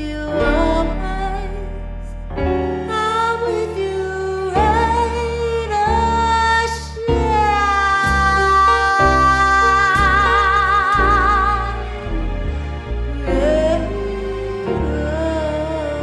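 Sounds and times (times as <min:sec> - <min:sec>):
woman singing with vibrato: 0:00.0 - 0:01.8, 0:02.8 - 0:12.3
instrumental accompaniment: 0:00.0 - 0:16.0.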